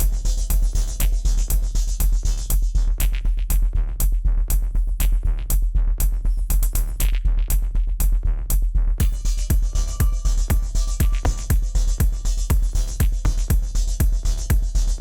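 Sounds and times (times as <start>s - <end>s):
deep bass drone: 0.0s - 15.0s
drum machine beat: 0.0s - 15.0s.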